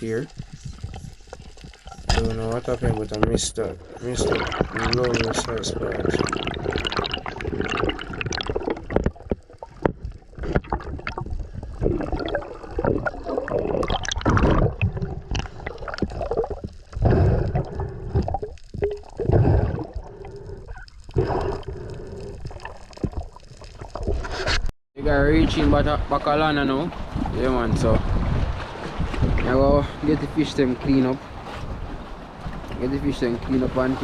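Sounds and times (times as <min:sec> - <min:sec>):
water gurgling and sloshing: 0:00.0 - 0:34.0
water thumping against camera: 0:00.2 - 0:20.0.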